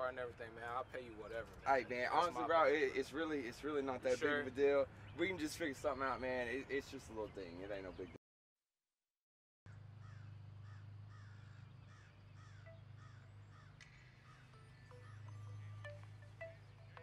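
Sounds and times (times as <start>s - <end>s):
bird calling: 9.7s - 17.0s
steady low hum: 9.7s - 17.0s.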